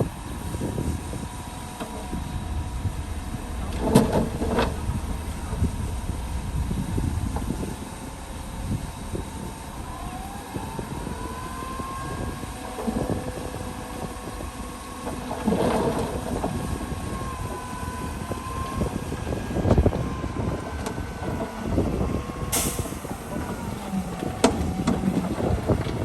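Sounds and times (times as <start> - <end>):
faint wavering whine: 0.0 - 14.2
diesel machinery rumble: 0.0 - 26.0
heavy thumps: 0.8 - 11.0.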